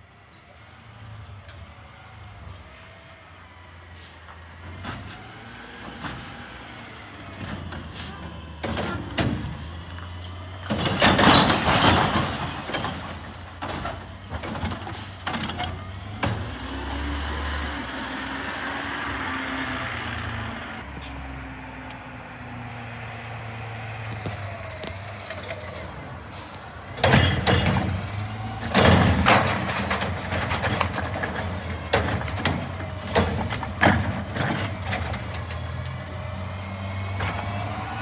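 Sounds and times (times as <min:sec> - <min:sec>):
diesel truck engine running: 0:00.6 - 0:38.0
metal clanks and knocks: 0:07.3 - 0:16.9, 0:26.9 - 0:35.8.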